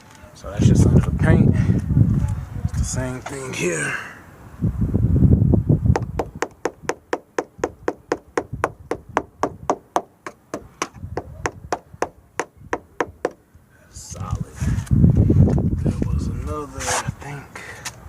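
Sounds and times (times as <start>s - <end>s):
low thumping: 4.8s - 13.4s.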